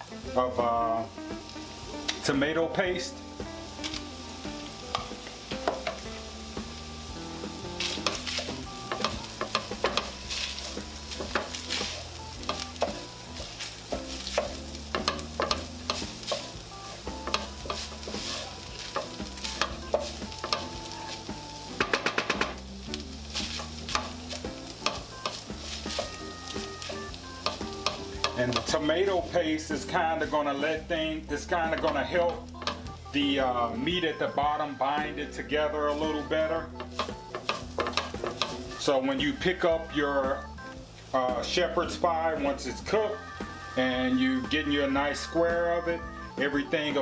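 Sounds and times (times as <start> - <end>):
meat and onions sizzling: 0.0 - 47.0
spoon scraping and knocking pan: 1.3 - 33.8, 35.8 - 39.7.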